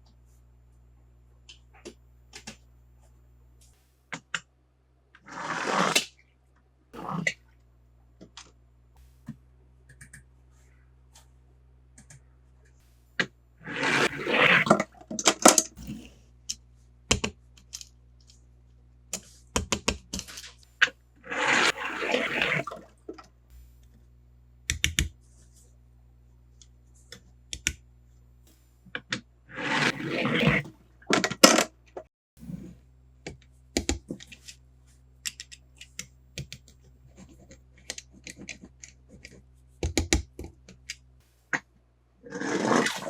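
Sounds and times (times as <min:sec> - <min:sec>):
sharp clicks and taps: 0:09.3 - 0:10.3, 0:24.7 - 0:25.1.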